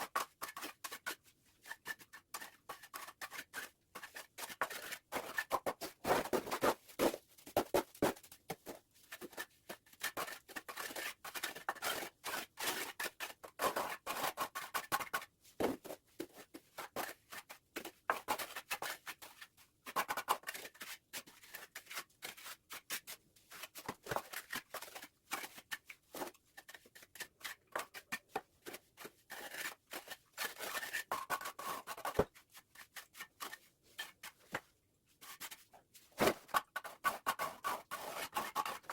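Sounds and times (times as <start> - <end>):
trowel scraping mortar: 28.7 - 34.5, 36.2 - 38.9.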